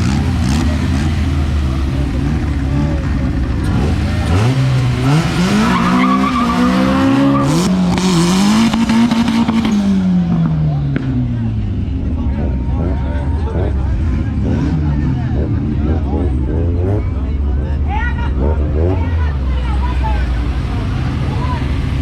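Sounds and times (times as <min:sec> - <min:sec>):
car engines idling: 0:00.0 - 0:22.0
race car accelerating hard: 0:00.0 - 0:22.0.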